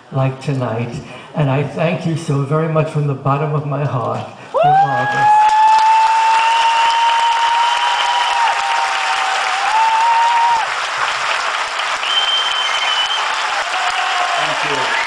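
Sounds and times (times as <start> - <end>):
audience applauding: 4.5 - 15.0
high steady whistle: 12.0 - 13.4.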